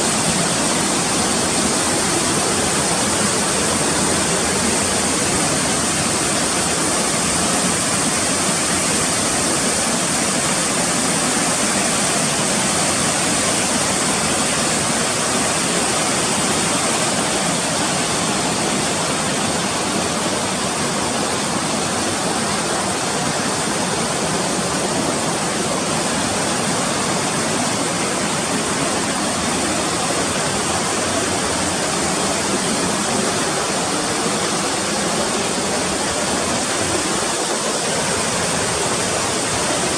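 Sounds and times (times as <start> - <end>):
rushing mountain water: 0.0 - 39.9.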